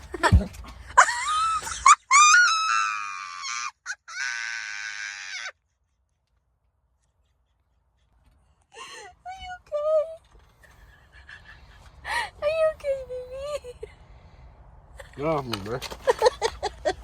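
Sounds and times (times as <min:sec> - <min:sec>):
high-pitched squealing cries: 0:01.0 - 0:05.6.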